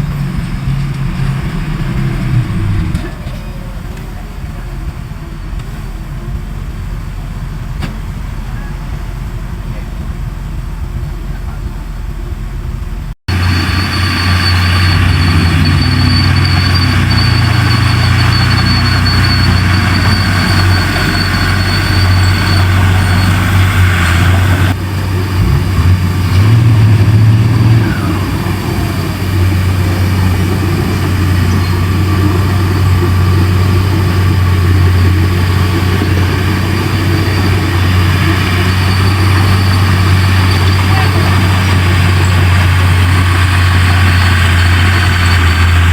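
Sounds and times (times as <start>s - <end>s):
diesel engine running: 0.0s - 45.9s
high thin whine: 13.3s - 25.3s.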